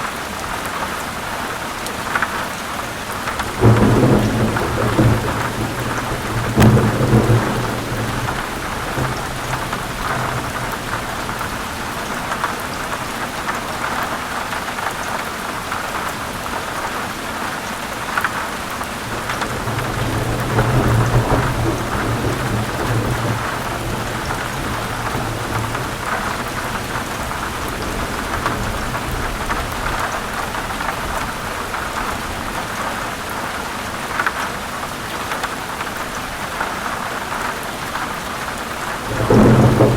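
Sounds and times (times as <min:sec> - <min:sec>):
heavy rain: 0:00.0 - 0:39.9
thunder rumbles: 0:03.1 - 0:13.3, 0:19.0 - 0:32.8, 0:38.8 - 0:39.9.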